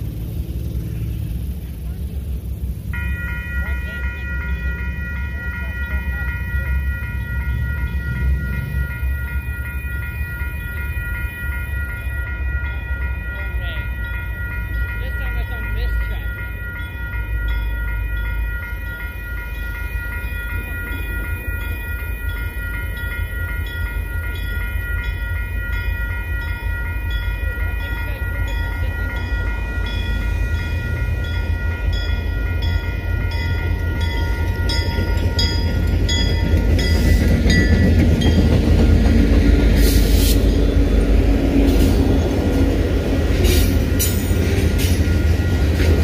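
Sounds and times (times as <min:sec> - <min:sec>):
diesel locomotive rumble: 0:00.0 - 0:46.0
railroad crossing bell ringing: 0:00.0 - 0:46.0.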